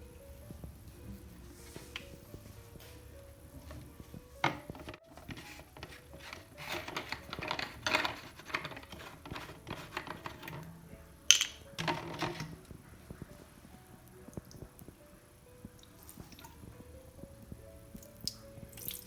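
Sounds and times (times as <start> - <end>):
handling clicks and taps: 3.7 - 10.7, 11.3 - 12.7
brief rustling: 4.4 - 10.7, 11.7 - 12.6.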